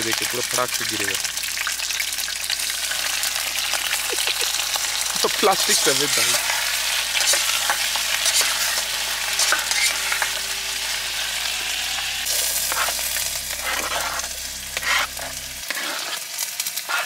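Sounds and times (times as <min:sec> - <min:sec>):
food sizzling in oil: 0:00.0 - 0:17.0
spatula scraping a pot: 0:05.7 - 0:10.4, 0:12.4 - 0:17.0.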